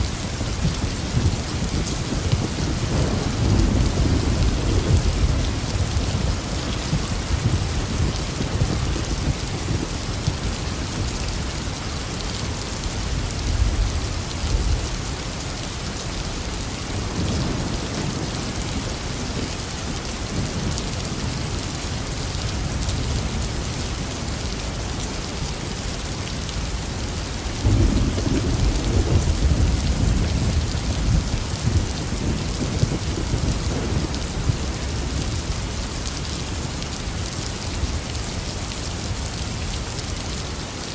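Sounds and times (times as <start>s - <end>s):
heavy rain falling: 0.0s - 40.9s
thunder rumbling: 0.2s - 11.1s, 27.6s - 35.8s.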